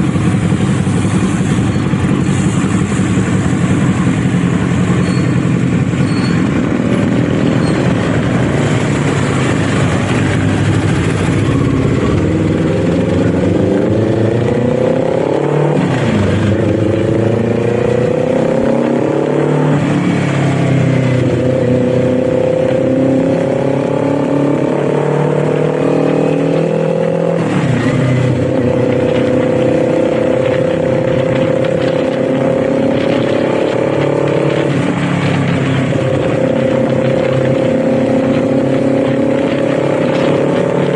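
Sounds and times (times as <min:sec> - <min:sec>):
wind and road noise: 0:00.0 - 0:40.9
motorcycle engine shifting up: 0:27.4 - 0:40.9.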